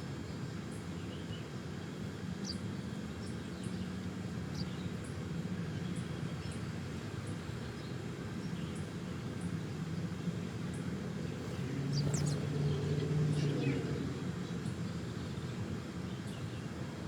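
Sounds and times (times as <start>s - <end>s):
steady low hum: 4.4s - 16.0s.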